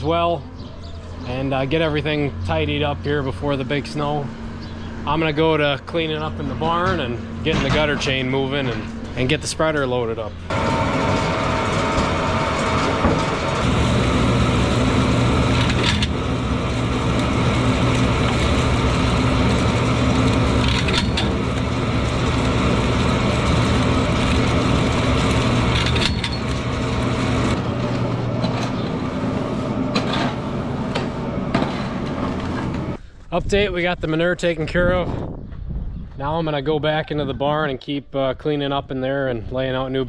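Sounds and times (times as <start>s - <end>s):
motor hum: 0.5s - 33.0s
chain and paddles clattering: 23.4s - 26.7s.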